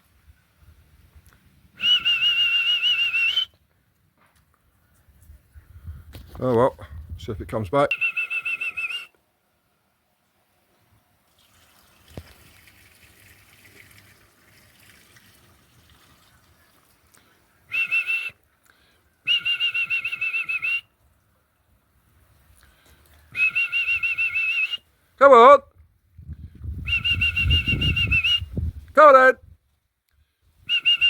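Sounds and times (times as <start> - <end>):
trilling whistle: 1.8 - 3.6, 7.9 - 9.2, 17.7 - 18.4, 19.2 - 20.9, 23.3 - 24.8, 26.8 - 28.6, 30.7 - 31.0.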